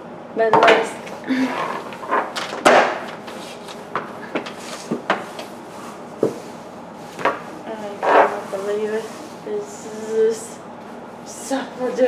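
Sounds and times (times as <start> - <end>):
hard objects scraping: 1.4 - 12.0.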